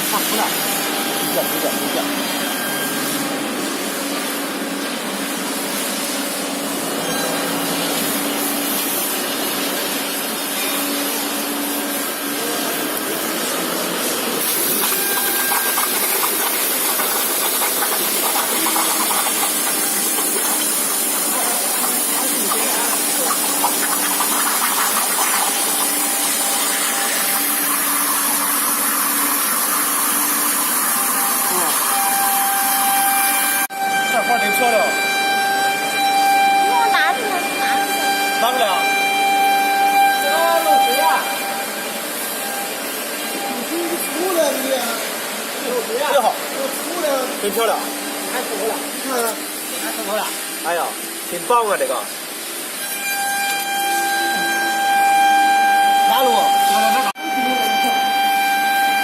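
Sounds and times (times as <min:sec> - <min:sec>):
plasma cutting torch hissing: 0:00.0 - 0:33.7.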